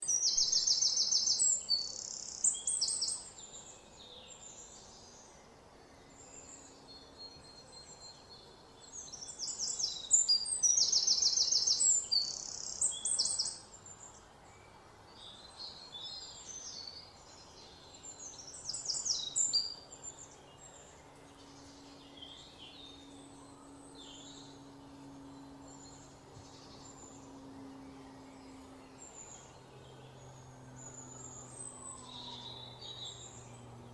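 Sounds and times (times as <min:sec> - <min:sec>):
songbird trilling: 0:00.0 - 0:03.6, 0:07.4 - 0:14.2, 0:17.8 - 0:33.9
bird chirps: 0:00.0 - 0:33.9
faint low hum: 0:00.0 - 0:33.9.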